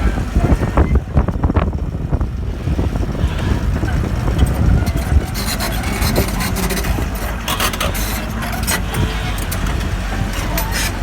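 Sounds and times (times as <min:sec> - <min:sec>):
diesel engine rumbling: 0:00.0 - 0:11.0
clicking and scraping: 0:03.3 - 0:11.0.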